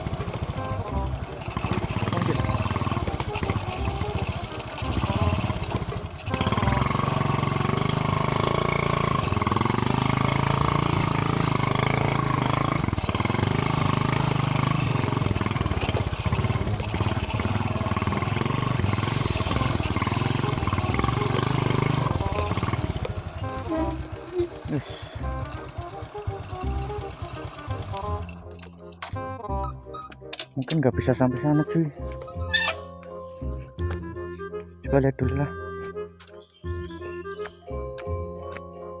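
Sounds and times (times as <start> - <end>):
motorcycle engine running: 0.0 - 29.8.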